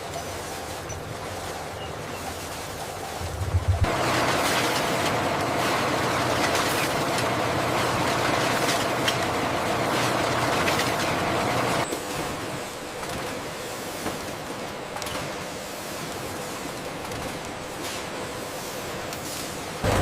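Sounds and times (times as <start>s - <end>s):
industrial machinery clattering: 3.2s - 11.8s.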